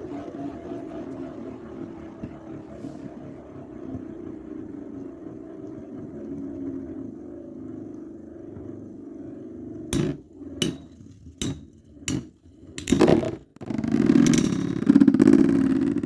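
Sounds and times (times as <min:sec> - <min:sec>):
spinning tops whirring: 0:09.9 - 0:16.0
tops clattering: 0:10.0 - 0:15.5
spinning tops clacking: 0:10.0 - 0:16.0.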